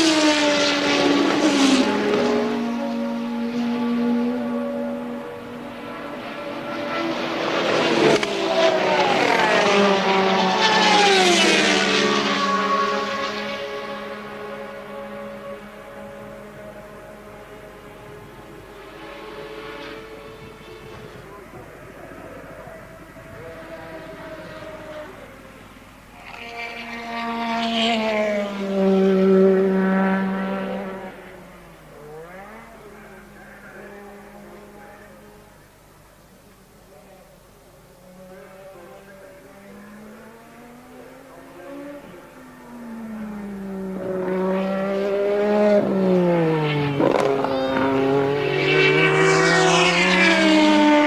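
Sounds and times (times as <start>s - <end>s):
race cars passing at speed: 0.0s - 51.0s.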